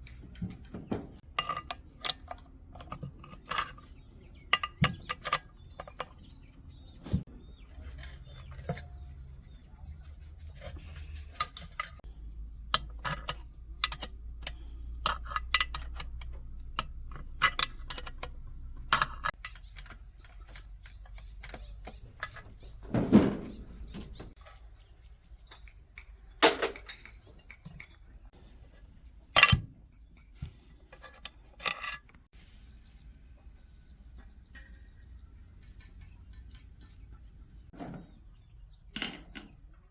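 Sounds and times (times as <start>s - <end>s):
hand tools clicking and knocking: 0.0s - 9.2s, 9.9s - 24.4s, 29.4s - 30.3s
cricket trill: 0.0s - 39.9s.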